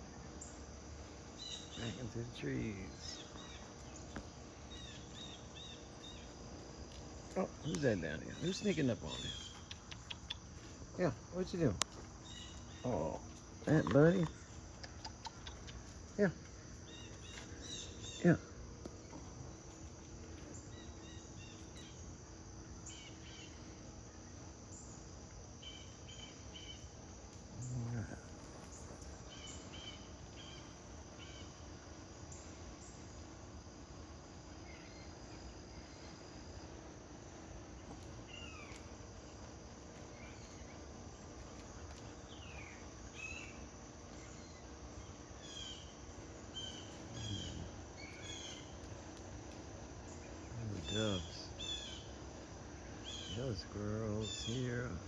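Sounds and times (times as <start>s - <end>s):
falling bird calls: 0.0s - 33.4s, 34.5s - 36.4s, 37.7s - 55.0s
insect drone: 0.0s - 55.0s
bird chirps: 1.4s - 6.4s, 7.3s - 10.7s, 11.4s - 16.0s, 16.8s - 18.3s.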